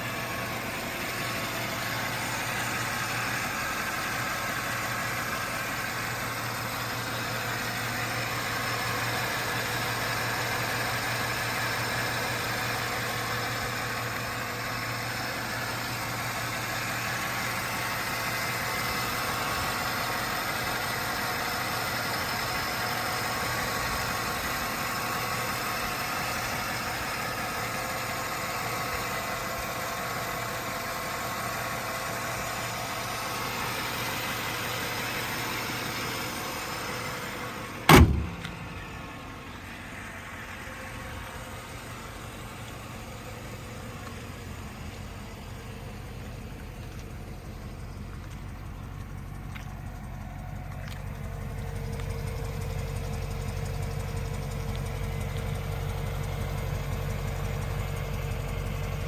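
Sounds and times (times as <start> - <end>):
car engine idling: 0.0 - 59.0
sharp thump: 37.9 - 38.9.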